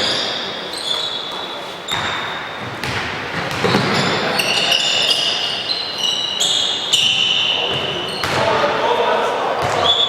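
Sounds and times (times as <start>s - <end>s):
sneaker squeaks on floor: 0.0s - 8.8s, 9.6s - 10.0s
basketball bouncing: 1.9s - 4.2s, 7.0s - 8.6s, 9.6s - 9.9s.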